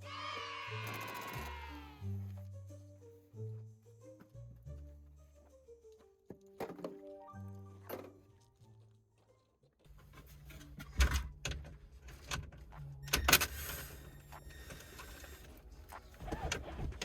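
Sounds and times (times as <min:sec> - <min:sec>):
car parts clanking and knocking: 0:09.9 - 0:13.6, 0:16.2 - 0:17.0.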